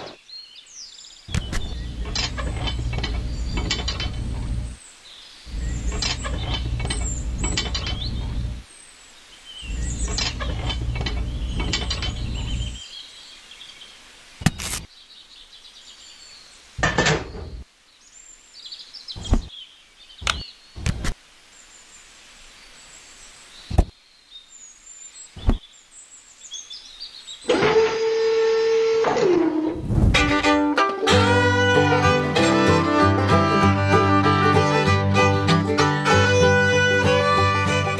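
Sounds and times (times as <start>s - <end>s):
birds chirping faintly: 0.0s - 27.5s
sharp clicks and knocks: 1.3s - 4.7s, 5.8s - 8.5s, 10.0s - 12.8s, 16.8s - 17.6s, 20.2s - 21.2s
low rumbling noise: 1.3s - 4.8s, 5.5s - 8.6s, 9.6s - 12.8s, 29.4s - 30.5s.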